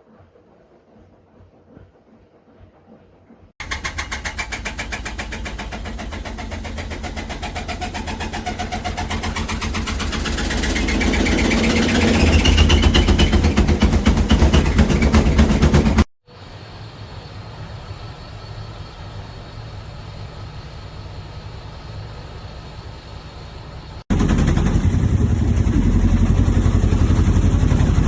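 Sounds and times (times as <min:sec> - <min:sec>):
drum pulsing: 0:03.6 - 0:16.1, 0:24.1 - 0:28.0
washing machine motor whine: 0:03.6 - 0:28.0.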